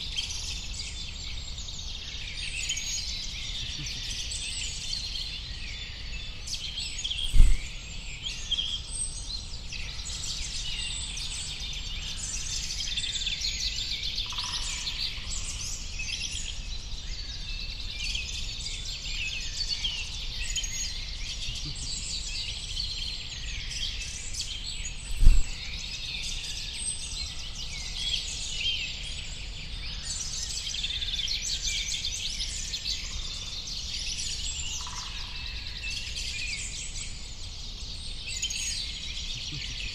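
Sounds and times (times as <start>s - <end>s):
songbirds chirping: 0.0s - 39.9s
low thumps: 7.3s - 7.7s, 25.1s - 25.6s.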